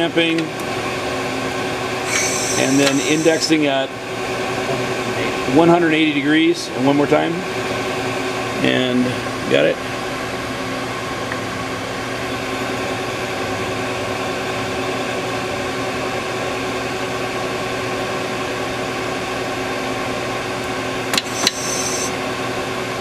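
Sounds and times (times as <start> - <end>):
lathe machine hum: 0.4 - 5.6, 18.8 - 23.0.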